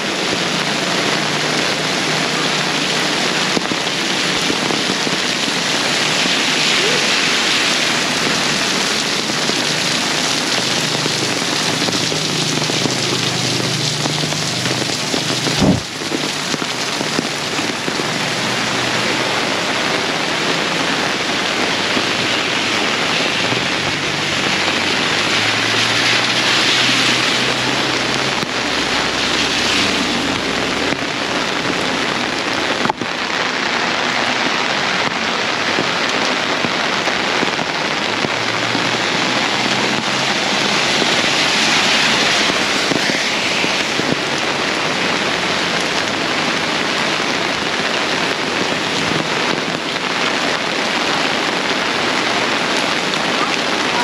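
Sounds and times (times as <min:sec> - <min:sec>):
heavy rain pouring: 0:00.0 - 0:54.0
rain on umbrella: 0:00.0 - 0:54.0
vehicle engine hum: 0:00.4 - 0:33.0.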